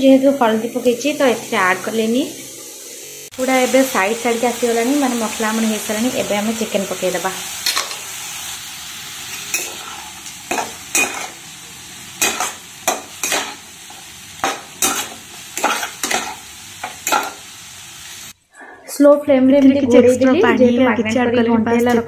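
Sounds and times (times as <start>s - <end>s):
chicken sizzling in oil: 0.0s - 18.4s
spatula scraping a pan: 9.3s - 11.4s, 12.2s - 13.6s, 14.4s - 17.5s.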